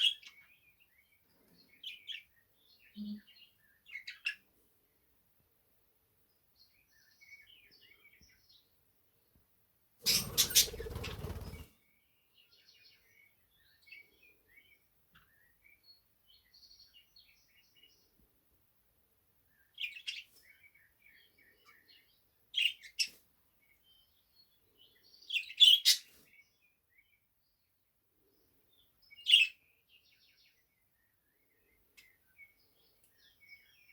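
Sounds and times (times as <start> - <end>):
loud sharp bird calls: 10.0 - 11.8.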